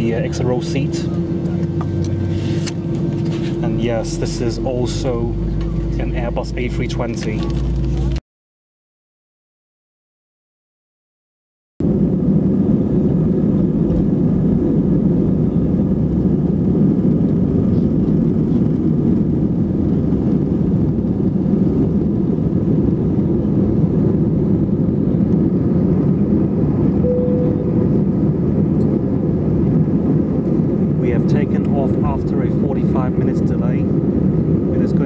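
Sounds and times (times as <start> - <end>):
airplane cabin engine and airflow noise: 0.0 - 8.2, 11.8 - 35.0.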